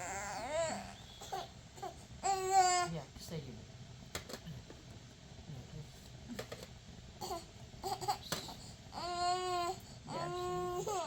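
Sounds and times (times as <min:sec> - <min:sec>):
child whimpering: 0:00.0 - 0:02.9, 0:09.0 - 0:11.0.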